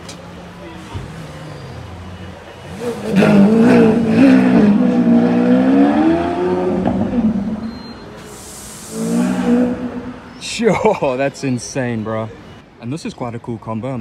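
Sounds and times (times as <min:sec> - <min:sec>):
car engine revving loudly: 0:02.6 - 0:07.7, 0:08.9 - 0:10.3.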